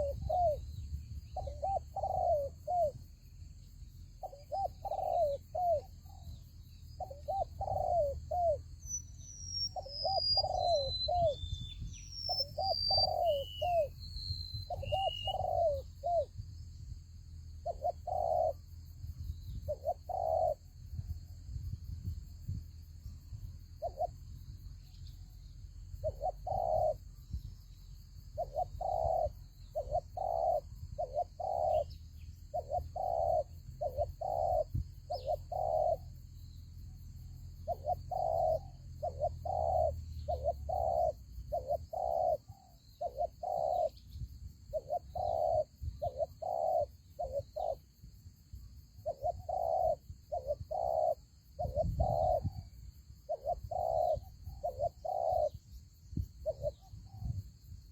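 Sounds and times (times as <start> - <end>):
doves cooing: 0.0 - 0.7, 1.4 - 3.1, 4.2 - 6.3, 7.0 - 8.8, 9.7 - 11.4, 12.3 - 14.0, 14.7 - 16.4, 17.5 - 18.7, 19.6 - 20.7, 26.0 - 27.1, 28.4 - 36.2, 37.6 - 44.1, 44.7 - 47.9, 49.0 - 55.8.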